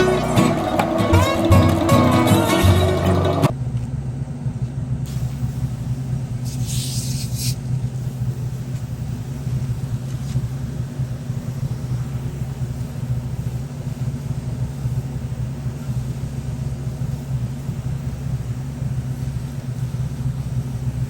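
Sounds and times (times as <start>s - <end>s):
motor droning: 0.0s - 3.5s
short hiss: 5.1s - 10.6s.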